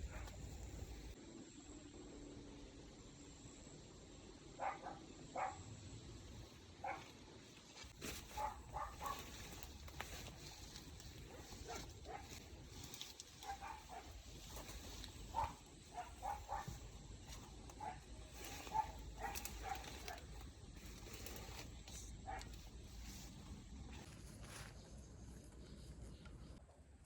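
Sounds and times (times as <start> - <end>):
dog barking: 4.6 - 5.7, 6.8 - 7.1, 8.2 - 9.8, 11.2 - 12.5, 13.4 - 20.4, 22.2 - 22.6.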